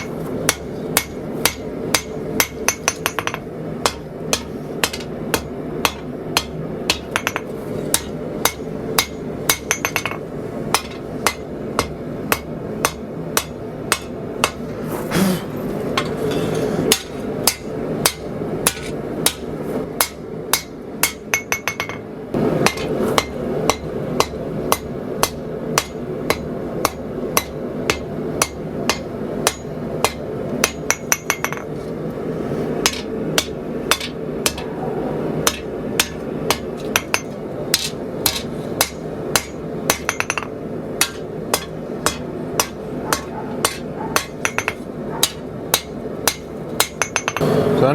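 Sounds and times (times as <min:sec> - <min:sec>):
hammer striking hot steel on anvil: 0:00.0 - 0:14.7, 0:16.0 - 0:22.0, 0:22.6 - 0:31.7, 0:32.8 - 0:34.7, 0:35.4 - 0:47.5.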